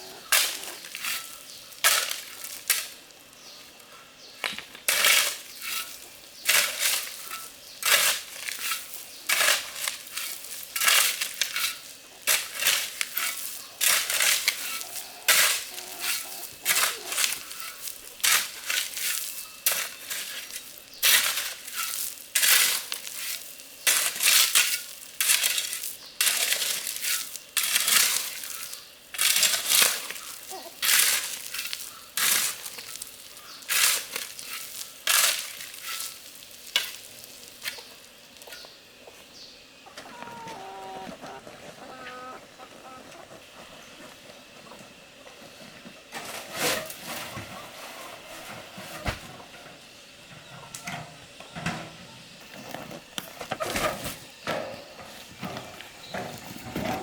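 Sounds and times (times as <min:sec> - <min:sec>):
gritty crunching scrapes: 0:00.0 - 0:39.4, 0:40.1 - 0:49.5, 0:52.4 - 0:57.0.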